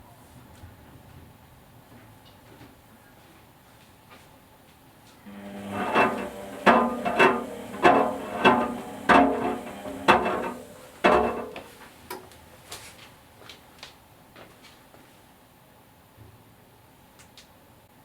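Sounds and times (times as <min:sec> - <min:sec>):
steady low hum: 0:05.2 - 0:11.8.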